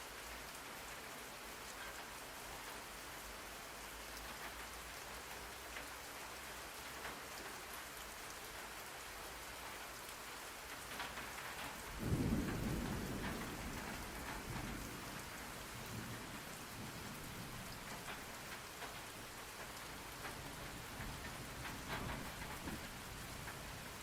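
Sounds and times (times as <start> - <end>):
steady rain: 0.0 - 24.0
thunder rolling: 12.0 - 19.0, 20.2 - 24.0.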